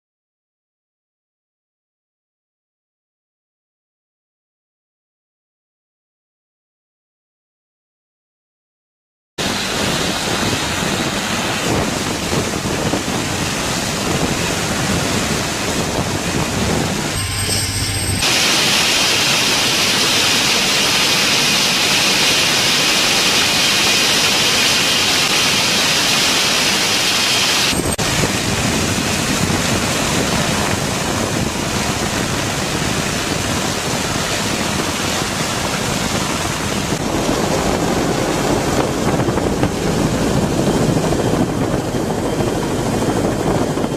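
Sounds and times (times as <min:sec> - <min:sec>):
helicopter rushing noise: 0:09.4 - 0:43.9.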